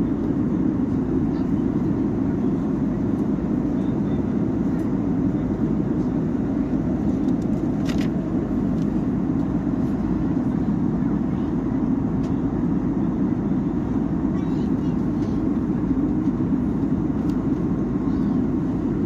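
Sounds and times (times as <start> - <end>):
jet airliner cabin drone: 0.0 - 19.0.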